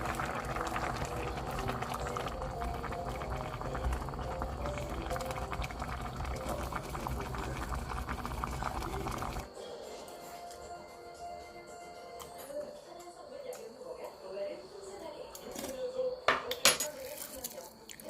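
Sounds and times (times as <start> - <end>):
stew boiling and bubbling: 0.0 - 9.6
soft background music: 0.0 - 18.0.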